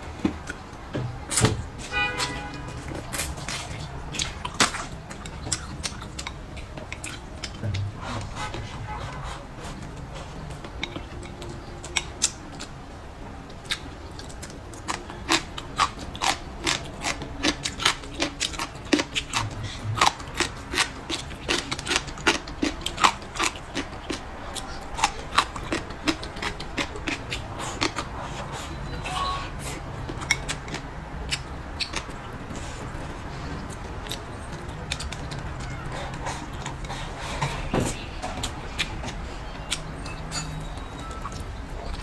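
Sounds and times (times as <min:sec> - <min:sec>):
person chewing crunchy food: 0:02.2 - 0:42.0.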